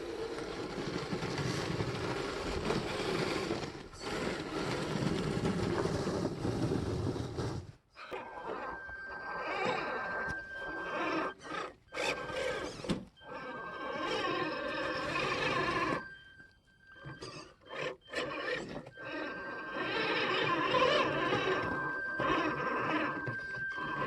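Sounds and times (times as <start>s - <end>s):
electric motor whine: 8.1s - 24.0s.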